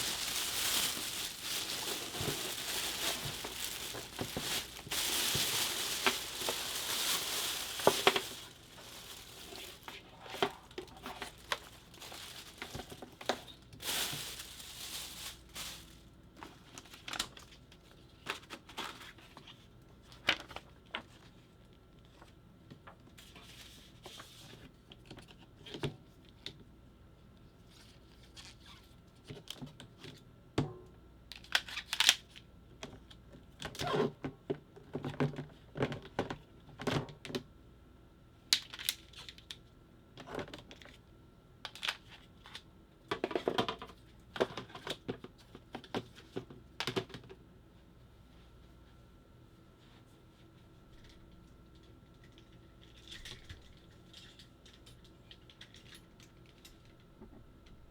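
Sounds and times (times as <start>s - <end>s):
packaging tearing and crinkling: 0.0s - 16.0s.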